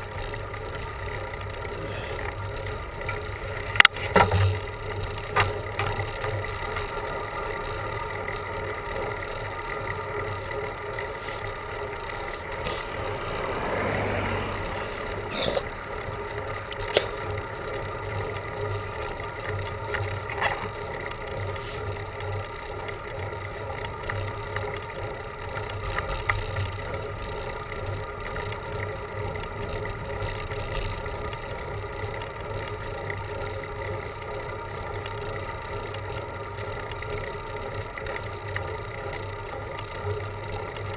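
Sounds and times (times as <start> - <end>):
bicycle riding noise: 0.0 - 40.9
broad swell of noise: 12.6 - 15.4.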